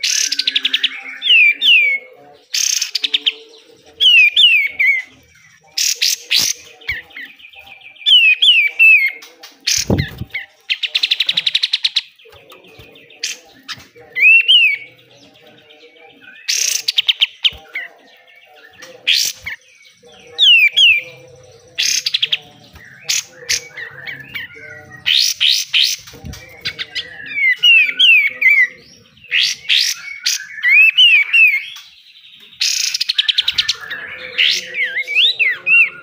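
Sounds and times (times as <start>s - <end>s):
bird whistling and trilling: 0.0s - 2.0s, 4.0s - 15.0s, 21.8s - 31.9s.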